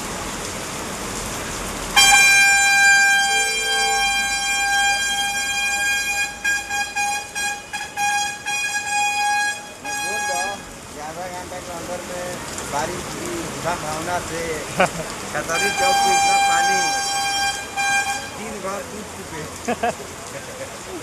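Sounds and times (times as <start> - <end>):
rain: 0.0 - 21.0
lower-pitched horn: 2.0 - 10.7, 15.4 - 18.8
vehicle horn blast and toots: 2.0 - 10.7, 15.4 - 18.8.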